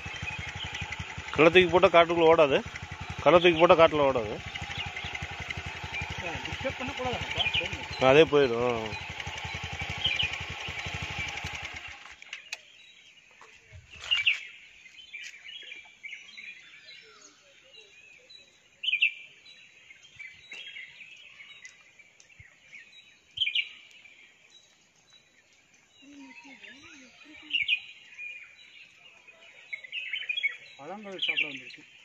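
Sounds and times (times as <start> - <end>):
vehicle engine idling: 0.0 - 12.5
birds chirping: 0.0 - 32.0.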